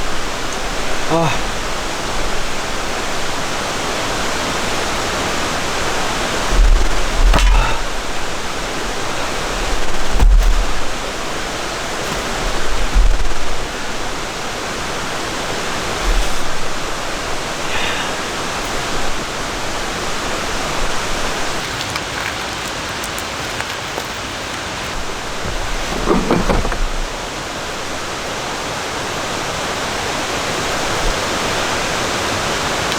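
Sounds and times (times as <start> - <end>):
low rumbles: 0.0 - 21.7, 24.9 - 28.4
heavy rain falling: 0.0 - 32.9.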